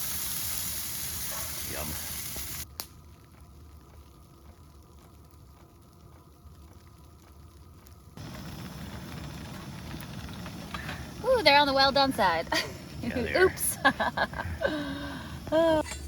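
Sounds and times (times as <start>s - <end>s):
sandwiches sizzling in a pan: 0.0s - 2.7s.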